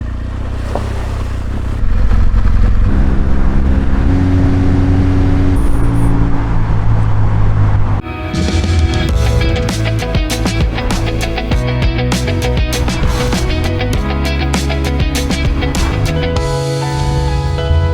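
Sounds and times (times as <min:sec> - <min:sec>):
motorcycle engine running: 0:00.0 - 0:06.9
guitar music: 0:08.0 - 0:17.9.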